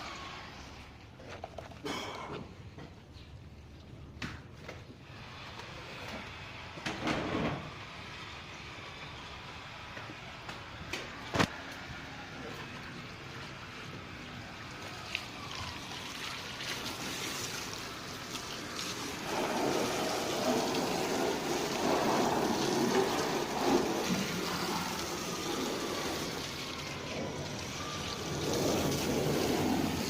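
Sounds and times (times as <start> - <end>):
water splashing over car: 14.7 - 30.0.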